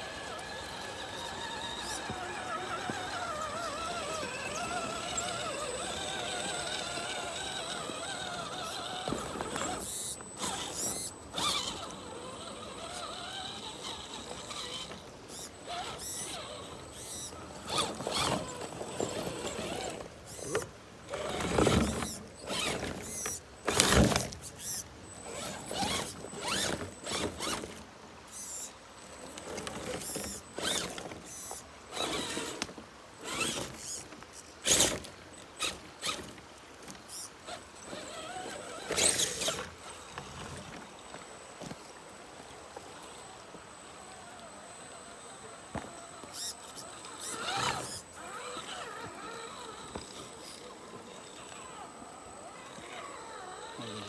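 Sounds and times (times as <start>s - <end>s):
creaks and clicks on rocks: 0.0s - 54.0s
rc car motor whirring in spurts: 0.0s - 54.0s.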